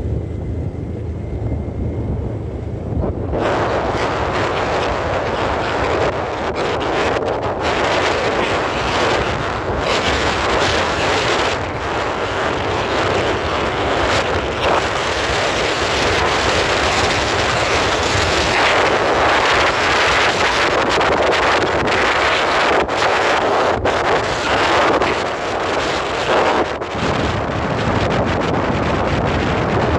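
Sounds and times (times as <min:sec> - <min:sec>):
vehicle running: 0:00.0 - 0:18.3
wind buffeting microphone: 0:00.0 - 0:29.9.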